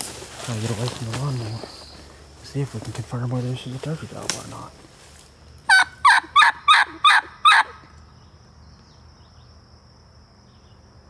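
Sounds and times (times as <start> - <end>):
faint high insect buzz: 0.0 - 11.0
turkey call hen yelps: 5.7 - 7.9.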